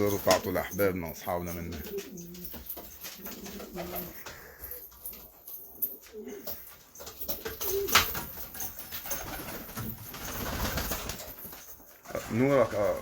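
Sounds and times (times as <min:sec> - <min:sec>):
pigeons cooing: 0:01.4 - 0:05.0, 0:05.8 - 0:08.2.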